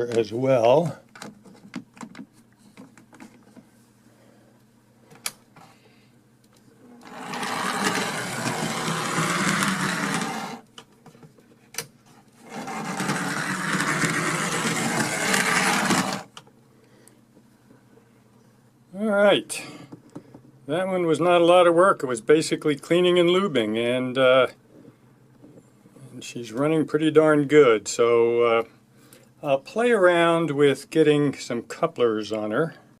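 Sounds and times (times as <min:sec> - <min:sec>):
model train motor whirring: 0:07.0 - 0:10.6, 0:12.5 - 0:16.3.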